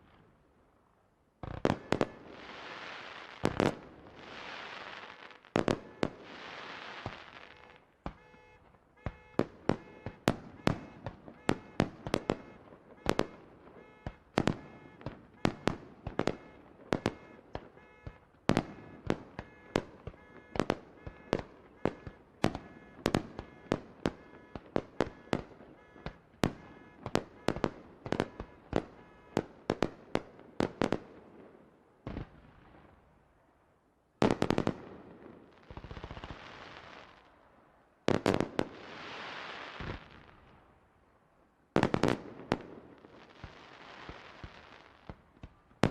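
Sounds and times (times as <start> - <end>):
fireworks bangs: 1.4 - 33.0, 34.2 - 37.4, 38.1 - 40.7, 41.8 - 45.9
fireworks crackling hiss: 2.3 - 5.5, 6.2 - 7.6, 38.8 - 40.4.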